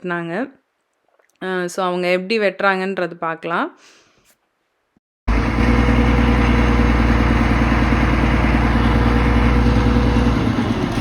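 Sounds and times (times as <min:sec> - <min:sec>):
machine engine droning: 0:05.3 - 0:11.0.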